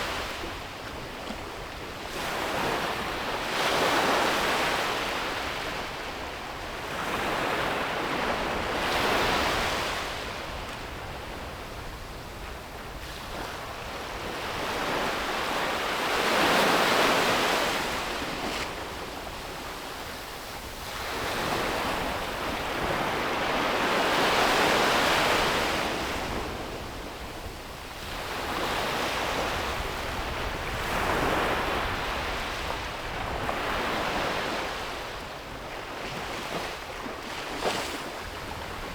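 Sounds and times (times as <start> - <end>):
sea waves breaking on a beach: 0.0 - 38.9
wind rumble on microphone: 16.4 - 38.9.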